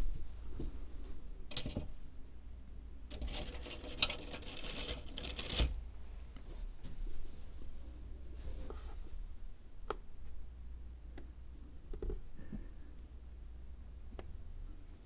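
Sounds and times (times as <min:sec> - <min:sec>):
light scratching and rustling: 0:03.1 - 0:09.3.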